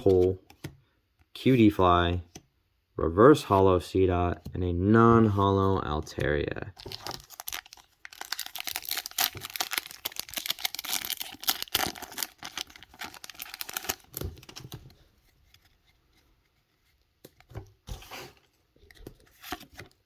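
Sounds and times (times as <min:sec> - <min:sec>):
foil wrapper tearing and crinkling: 0:06.8 - 0:14.7.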